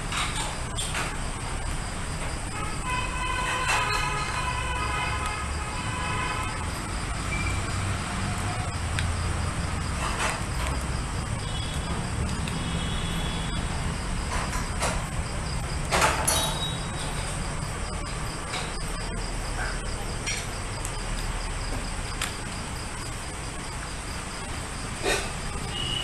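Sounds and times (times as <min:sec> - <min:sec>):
crickets chirping: 0:00.0 - 0:26.0
distant traffic rumble: 0:00.0 - 0:26.0
faint horn toots: 0:02.5 - 0:07.8.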